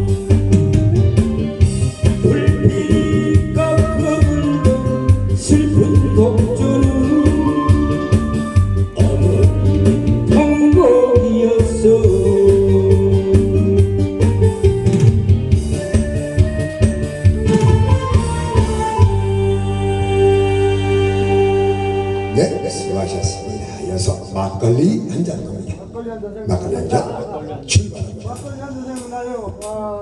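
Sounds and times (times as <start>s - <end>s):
steady beat: 0.0s - 19.2s
electronic keyboard melody: 0.0s - 24.6s.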